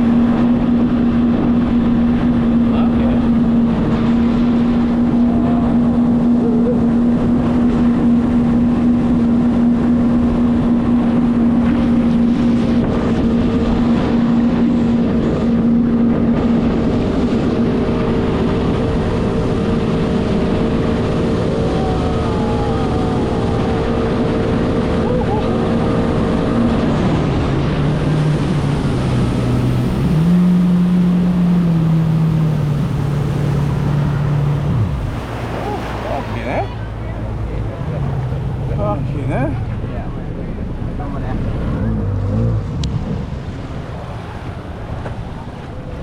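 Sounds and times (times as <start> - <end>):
jet ski engine running: 0.0 - 46.0
wind over microphone: 0.0 - 46.0.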